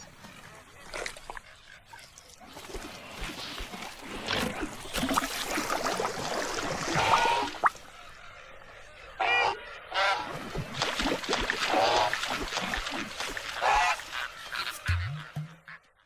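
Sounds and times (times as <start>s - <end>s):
goose honking: 13.5s - 16.0s.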